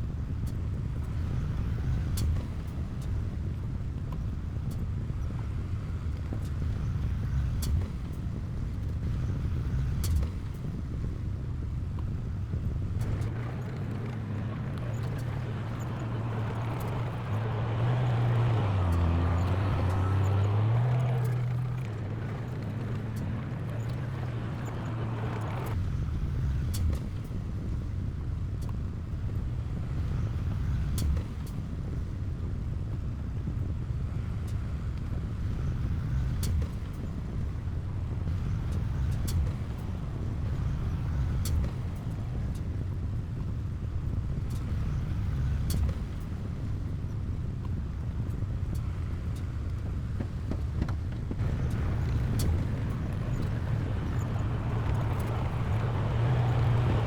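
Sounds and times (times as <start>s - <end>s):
heavy diesel engine droning: 13.2s - 25.8s, 51.3s - 57.0s.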